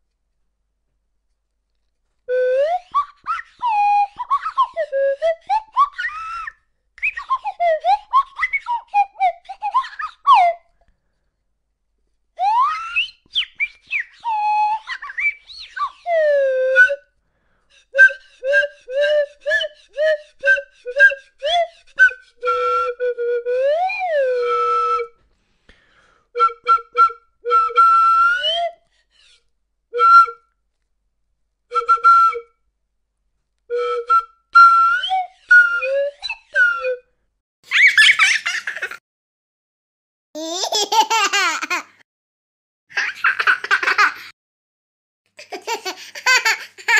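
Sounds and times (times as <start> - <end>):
whistle-like notes: 2.3 - 10.7, 12.4 - 17.1, 18.0 - 25.2, 26.4 - 29.4, 33.7 - 37.1.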